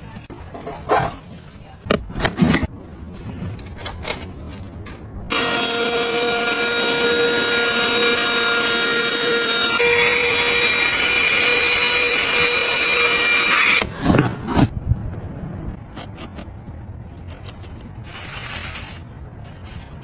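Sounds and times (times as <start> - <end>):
appliance motor whine: 5.3 - 14.7.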